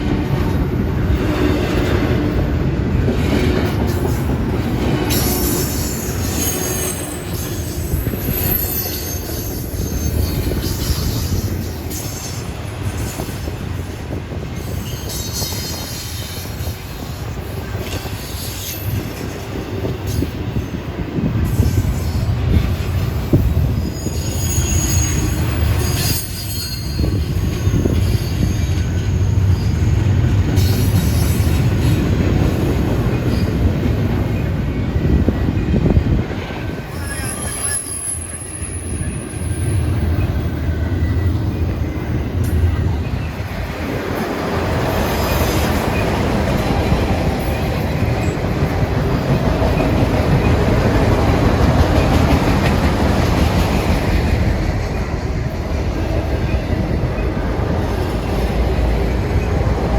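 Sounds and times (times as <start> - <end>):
freight train rumbling past: 0.0 - 59.9
high-pitched wheel squeals: 5.1 - 12.4, 23.8 - 29.7, 36.9 - 42.6.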